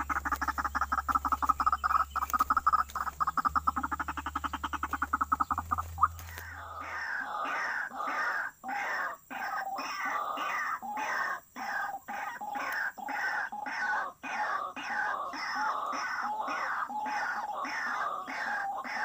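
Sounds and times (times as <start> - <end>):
low steady hum: 0.0 - 10.0
rapid croaking animal calls: 0.0 - 19.0.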